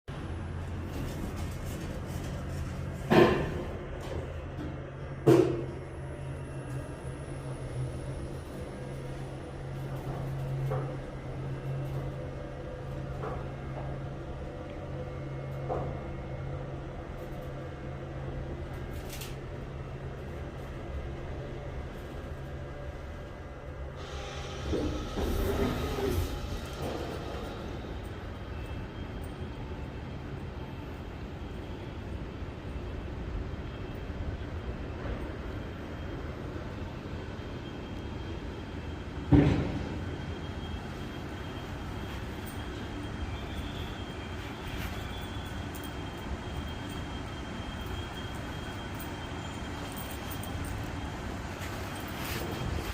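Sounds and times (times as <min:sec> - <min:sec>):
underground station rumble: 0:00.0 - 0:52.9
steady low hum: 0:00.1 - 0:52.9.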